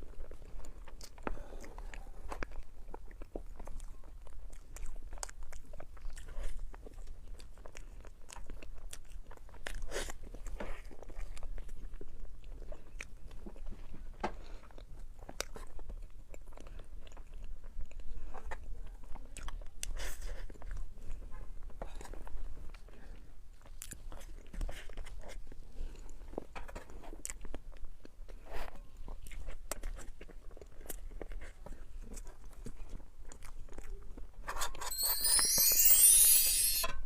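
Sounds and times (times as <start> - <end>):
person chewing crunchy food: 0.0 - 13.6.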